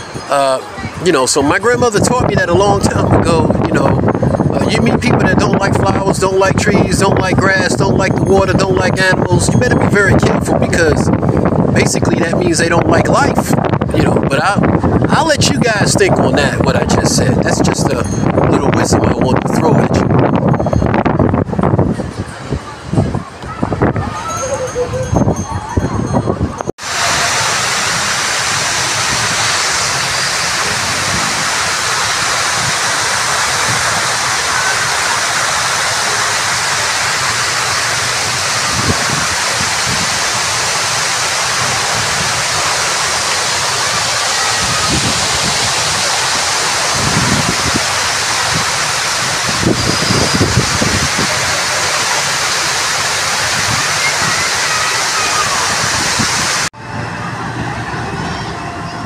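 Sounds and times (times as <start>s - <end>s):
rush of falling water: 26.8s - 56.7s.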